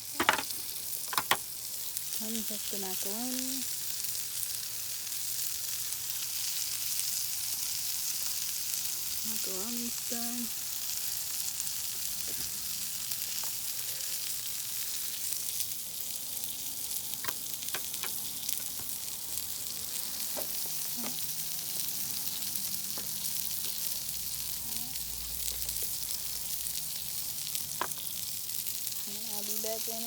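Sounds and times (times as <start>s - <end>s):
food sizzling on grill: 0.0s - 30.0s.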